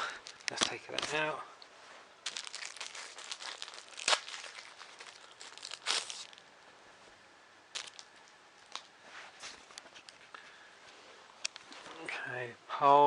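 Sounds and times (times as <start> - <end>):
plastic packaging crinkling: 0.0 - 1.2, 2.2 - 6.5, 7.7 - 10.3.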